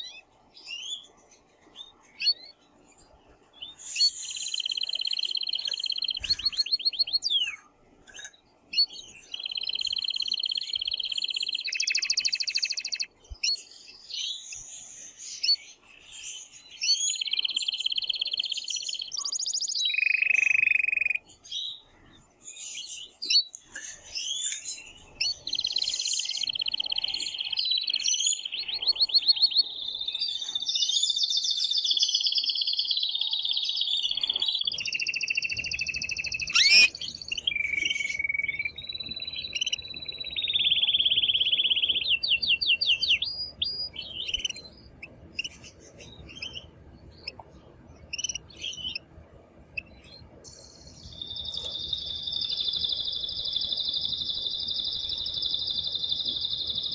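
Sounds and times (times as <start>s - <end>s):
canary singing trills: 0.0s - 56.9s.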